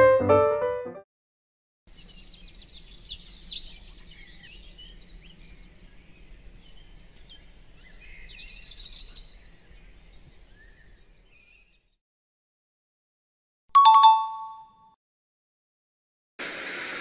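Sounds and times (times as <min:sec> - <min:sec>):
bird trill: 0:02.0 - 0:09.9
birds chirping and whistling: 0:02.0 - 0:11.8.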